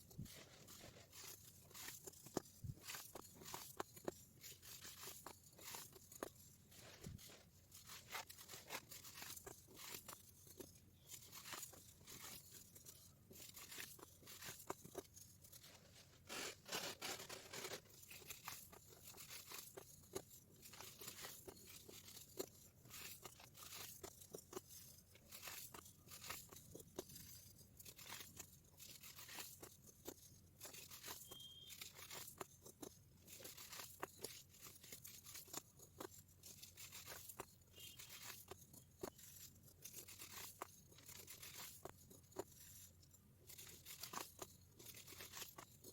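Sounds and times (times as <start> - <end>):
baking soda crunching: 4.4 - 19.8.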